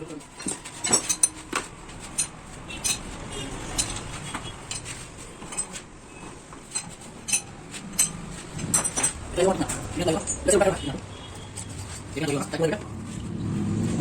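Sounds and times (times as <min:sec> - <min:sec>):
metallic clinks of tools: 0:00.3 - 0:05.8, 0:06.7 - 0:10.6.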